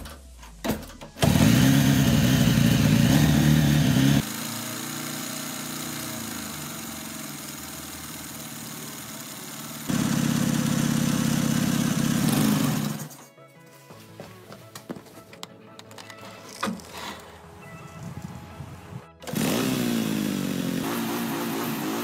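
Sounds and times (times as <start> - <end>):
motorcycle engine running: 1.2 - 13.2, 19.2 - 22.0.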